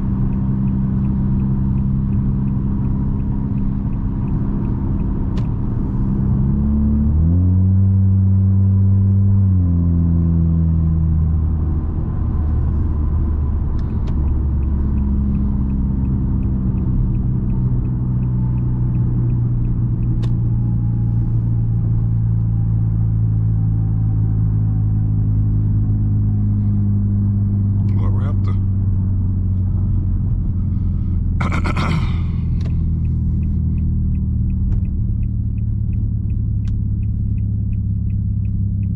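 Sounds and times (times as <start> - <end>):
car exhaust droning: 10.0 - 38.9.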